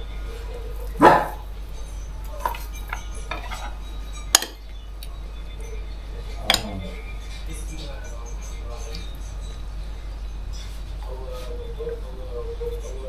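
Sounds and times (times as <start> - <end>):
cutlery and dishes clinking: 0.3 - 9.7.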